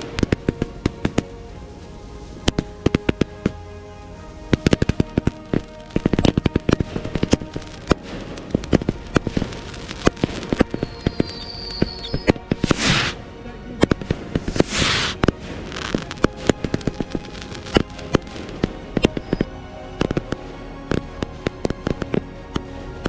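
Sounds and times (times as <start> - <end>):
music: 0.0 - 23.0
fireworks bangs and crackles: 6.0 - 13.2
firework whistle: 7.5 - 13.2.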